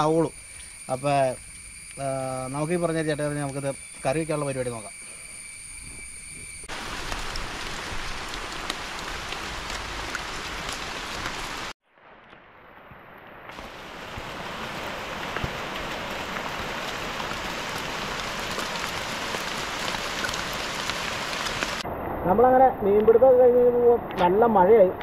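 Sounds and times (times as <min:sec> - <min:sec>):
heavy rain falling: 0:06.7 - 0:24.6.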